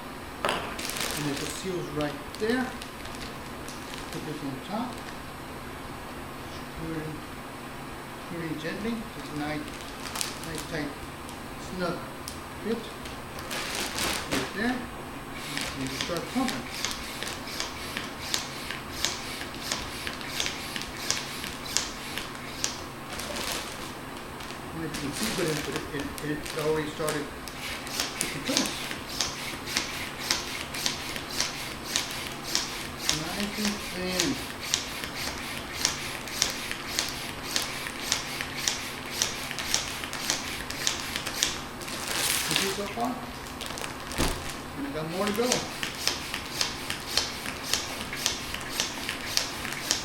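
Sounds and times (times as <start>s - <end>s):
hand pump air hiss: 15.4s - 22.8s, 26.5s - 41.6s, 45.1s - 50.0s.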